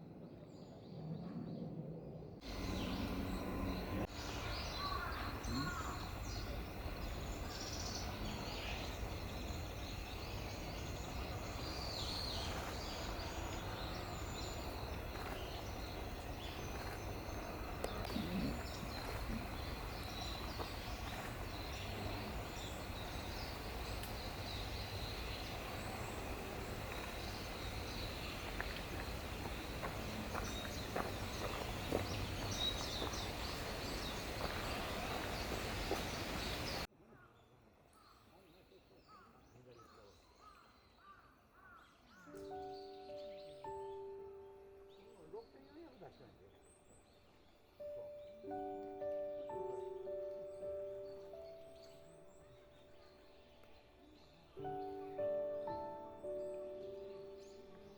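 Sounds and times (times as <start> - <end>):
outdoor background noise: 0.0 - 57.9
faint bird calls: 2.5 - 37.3.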